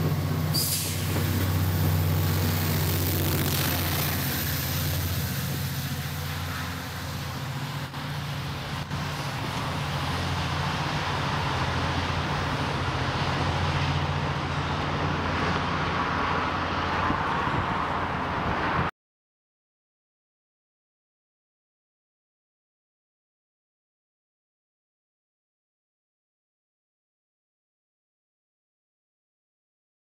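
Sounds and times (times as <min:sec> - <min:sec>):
train wheels rushing on rails: 0:00.0 - 0:16.0
diesel locomotive engine humming: 0:00.0 - 0:18.9.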